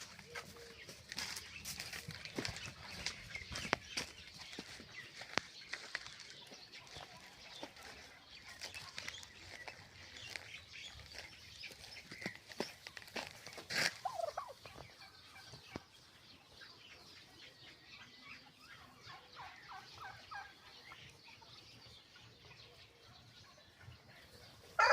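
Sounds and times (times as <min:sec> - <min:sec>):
turkeys gobbling: 0:12.4 - 0:15.6.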